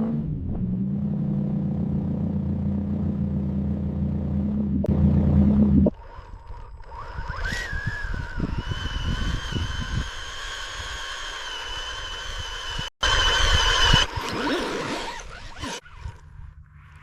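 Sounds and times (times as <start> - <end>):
low bumps and rumble: 0.0 - 7.4
small motor whining: 5.5 - 17.0.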